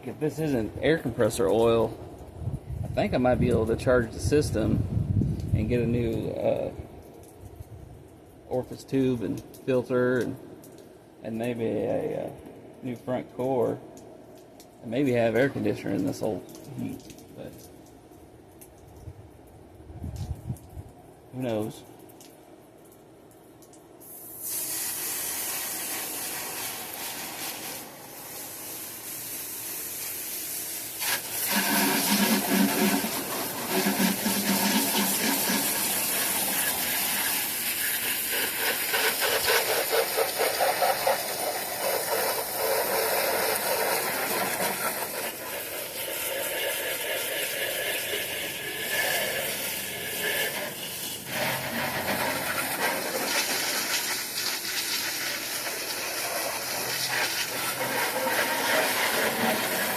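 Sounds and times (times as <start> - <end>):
water jet spraying: 24.0 - 59.9.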